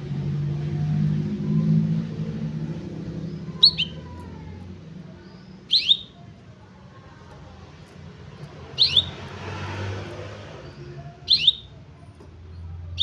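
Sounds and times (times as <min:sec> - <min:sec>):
canary chirps: 0:02.7 - 0:13.0.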